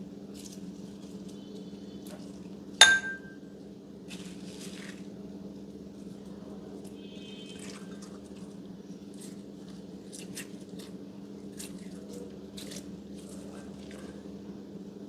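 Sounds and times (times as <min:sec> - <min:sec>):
steady low hum: 0:02.8 - 0:04.0.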